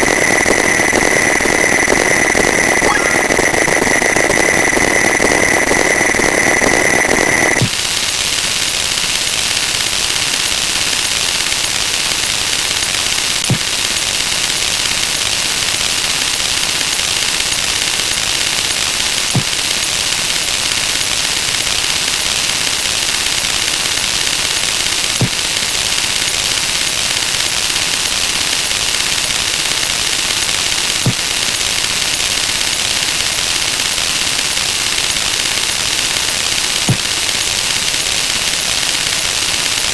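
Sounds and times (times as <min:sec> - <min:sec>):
steady alarm tone: 0:00.0 - 0:07.6.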